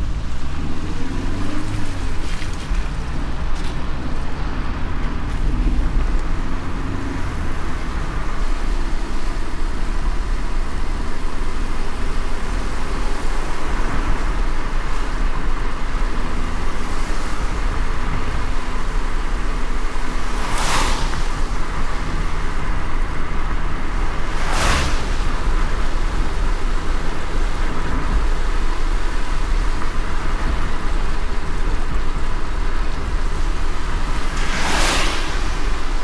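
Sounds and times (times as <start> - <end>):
car road rumble: 0.0 - 36.0
tyres hissing on wet road: 0.0 - 36.0
whoosh: 24.3 - 25.6, 34.1 - 36.0.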